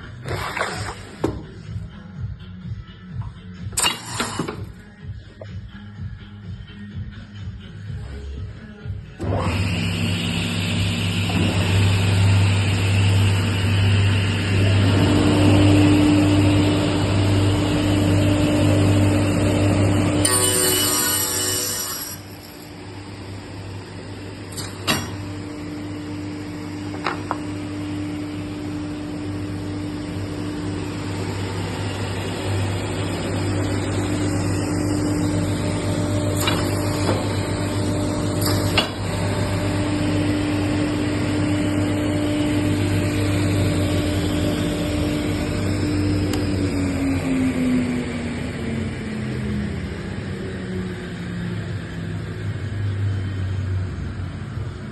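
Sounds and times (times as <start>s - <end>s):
panel saw whine: 9.2s - 24.6s, 25.2s - 53.7s.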